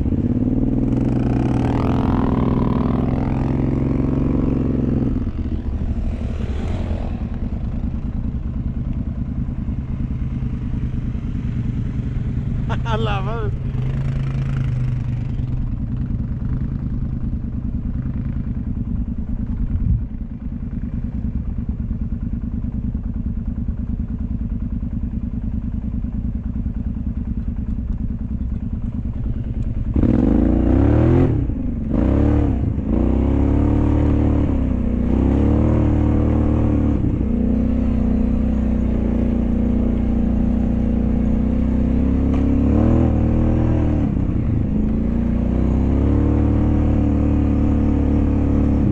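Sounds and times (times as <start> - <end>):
off-road vehicle engine revving: 0.0 - 17.0, 29.0 - 48.9.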